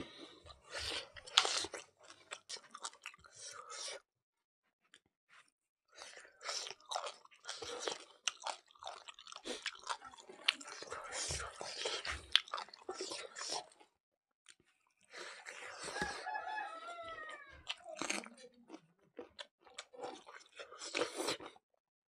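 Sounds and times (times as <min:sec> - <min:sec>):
chewing and mouth smacking: 0:00.1 - 0:04.0, 0:06.0 - 0:21.6
crunchy bites: 0:17.6 - 0:21.6.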